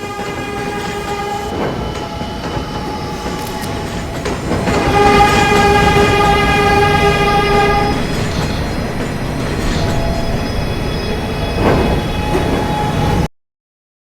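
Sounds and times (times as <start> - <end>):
train horn blast: 0.0 - 9.1
train wheels rumbling on track: 0.0 - 13.3
wheel squeals: 0.0 - 13.3.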